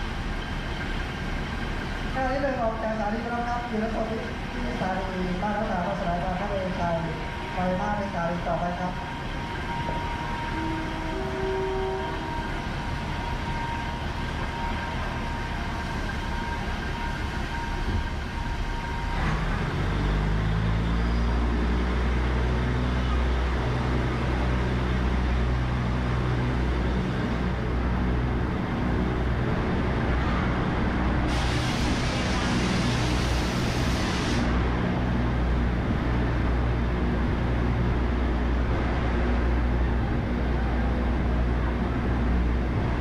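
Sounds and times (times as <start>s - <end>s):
steady high whine: 0.0s - 23.3s
diesel train engine working hard: 0.0s - 43.0s.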